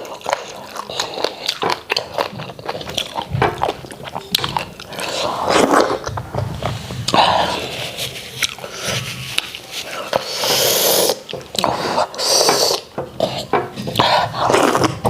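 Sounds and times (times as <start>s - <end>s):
wet chewing and lip smacks: 0.0s - 6.1s
wet slurping: 0.0s - 12.9s.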